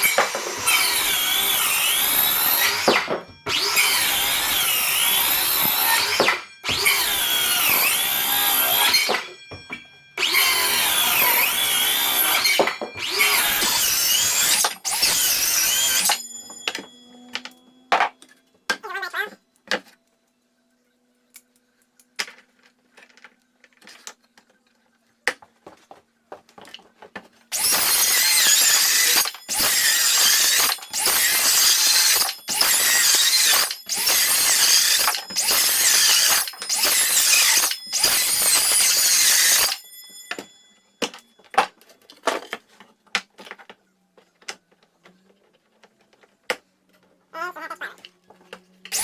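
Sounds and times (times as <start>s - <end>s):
circular saw cutting wood: 0.0s - 9.4s, 10.2s - 18.1s, 27.5s - 40.4s, 48.5s - 49.0s
saw blade spinning down: 0.0s - 9.4s, 10.2s - 18.0s, 27.5s - 40.5s.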